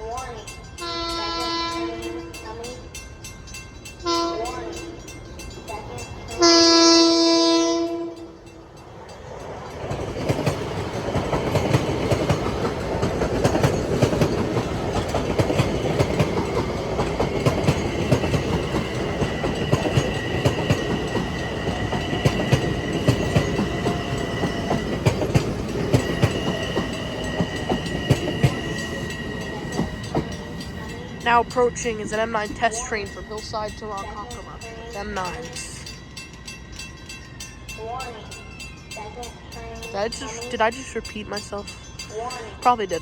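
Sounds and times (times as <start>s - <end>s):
train rumble: 0.0s - 43.0s
train wheels clicking over rail joints: 7.9s - 38.7s.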